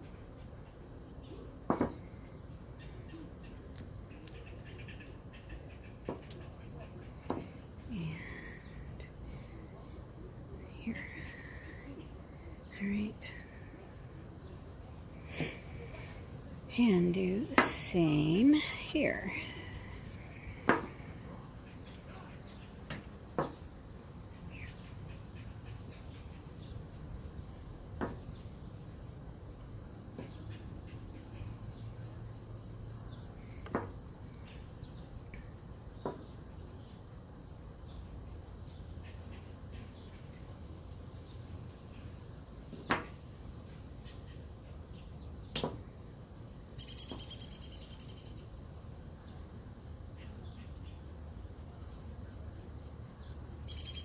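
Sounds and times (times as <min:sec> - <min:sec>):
low steady hum: 0:06.5 - 0:21.8.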